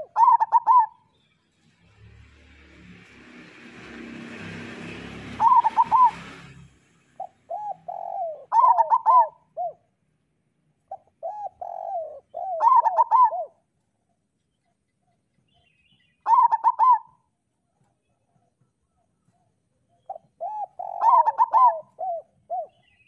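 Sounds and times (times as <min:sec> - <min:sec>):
dove cooing: 0:00.0 - 0:01.0, 0:05.3 - 0:06.5, 0:07.2 - 0:09.9, 0:10.9 - 0:13.6, 0:16.3 - 0:17.3, 0:18.9 - 0:23.0.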